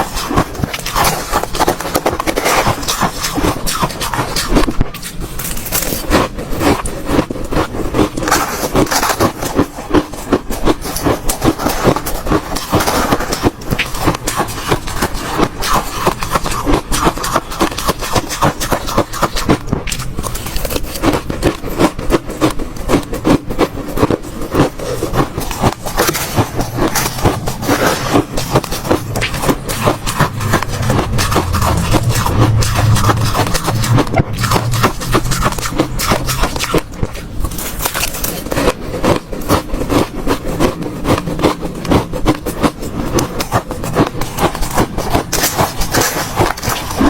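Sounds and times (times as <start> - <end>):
ice being chewed: 0.0 - 47.0.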